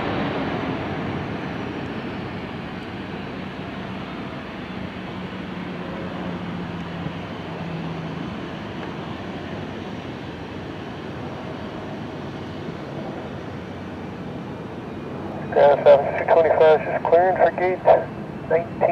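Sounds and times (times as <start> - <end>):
aircraft engine rushing: 0.0 - 18.9.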